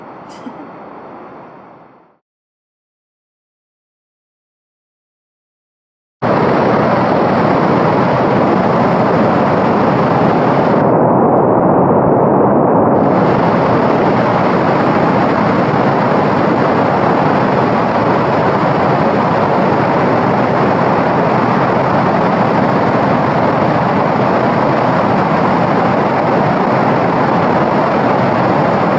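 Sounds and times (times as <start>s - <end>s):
white noise hiss: 0.0s - 2.2s, 6.2s - 11.0s, 12.9s - 28.9s.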